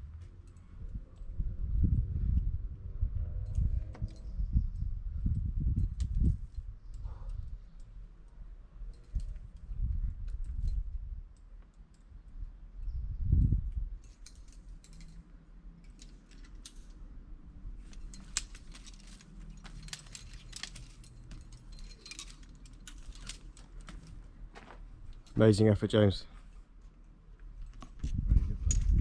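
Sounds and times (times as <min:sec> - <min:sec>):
low rumbles: 0:00.0 - 0:08.0
metal climbing gear clinking: 0:00.1 - 0:01.4, 0:03.4 - 0:04.4, 0:05.4 - 0:29.0.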